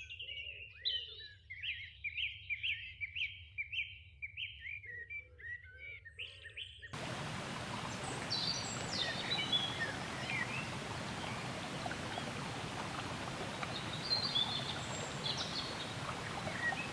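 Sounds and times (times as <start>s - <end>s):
birds calling: 7.0s - 16.9s
birds chirping and trilling: 7.0s - 16.9s.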